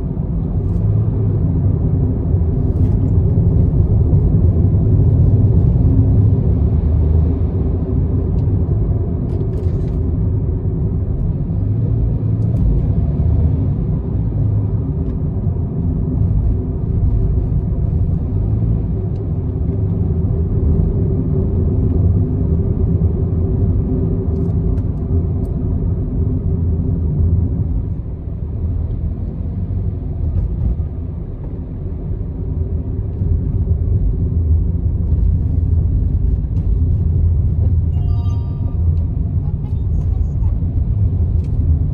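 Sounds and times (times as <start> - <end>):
car engine: 0.0 - 41.9.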